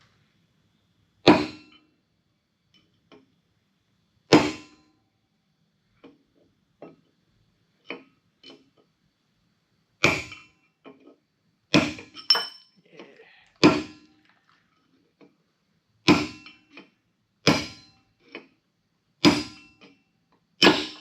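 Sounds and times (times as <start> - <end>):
hammer striking metal: 1.3 - 1.8, 16.1 - 16.6, 17.4 - 18.0, 19.2 - 19.8, 20.6 - 21.0.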